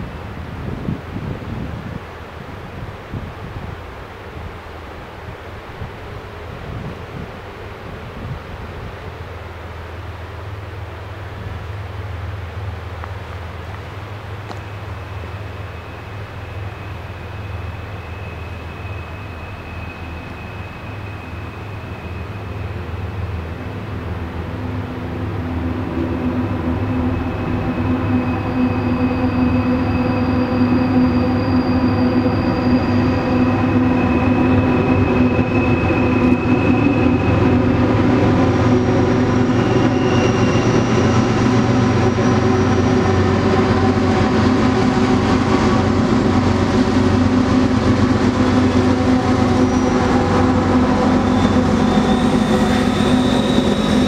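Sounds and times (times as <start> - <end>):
diesel locomotive drone: 0.0 - 54.0
freight cars rumbling over bridge: 0.0 - 54.0
faint high squeals: 14.4 - 23.8, 24.6 - 54.0.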